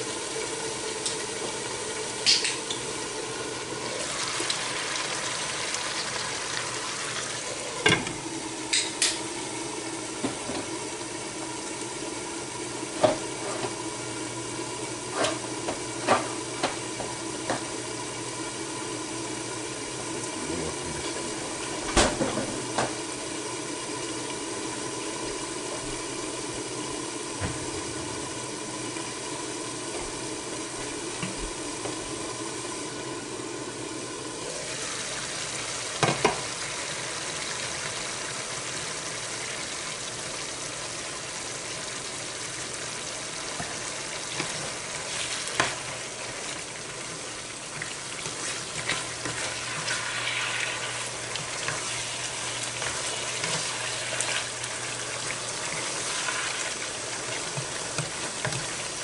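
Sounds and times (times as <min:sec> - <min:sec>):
chicken sizzling in a frying pan: 0:00.0 - 0:59.0
spatula stirring: 0:47.7 - 0:59.0.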